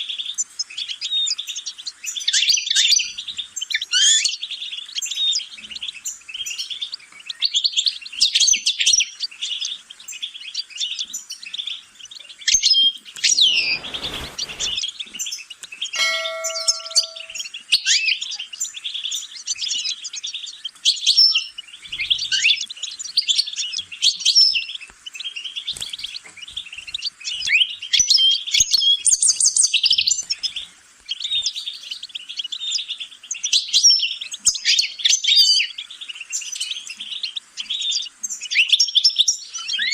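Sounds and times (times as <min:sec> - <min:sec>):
finch twittering song: 0:12.0 - 0:17.6
whoosh: 0:13.3 - 0:14.8
ringing ding tone: 0:16.0 - 0:17.5.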